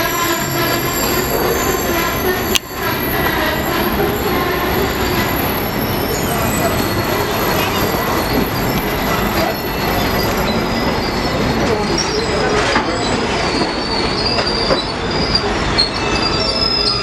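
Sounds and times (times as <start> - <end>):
train rumble: 0.0 - 17.0
train wheels squealing on rails: 0.0 - 17.0.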